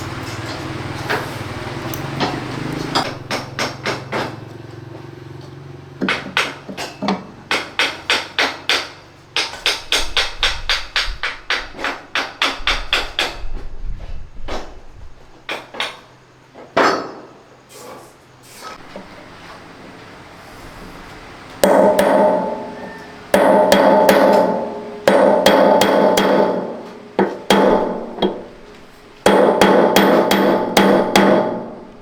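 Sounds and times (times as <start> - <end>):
hammer blows: 21.6 - 32.0.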